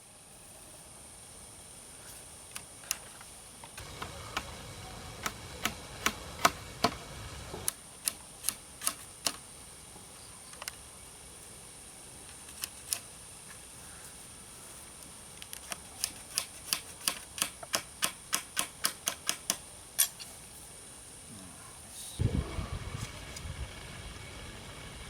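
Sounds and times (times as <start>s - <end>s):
faint high whine: 0.0s - 16.0s, 19.6s - 25.0s
bamboo clicks and taps: 2.5s - 4.5s, 5.2s - 7.0s, 7.6s - 9.4s, 15.0s - 19.6s.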